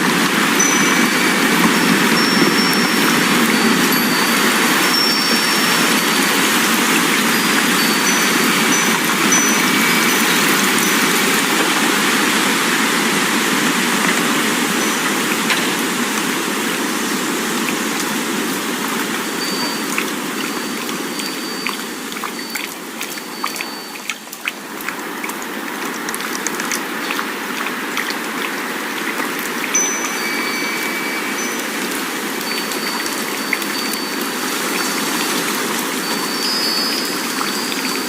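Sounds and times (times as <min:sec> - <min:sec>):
wind blowing: 0:00.0 - 0:19.4
wind chimes ringing softly: 0:00.0 - 0:24.8, 0:29.5 - 0:38.0.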